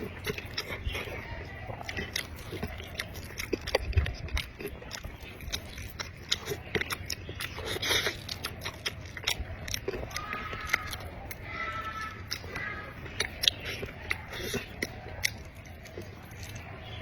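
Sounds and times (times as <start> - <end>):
person chewing and biting food: 0.0 - 17.0
wet mouth clicks and smacks: 1.8 - 11.4.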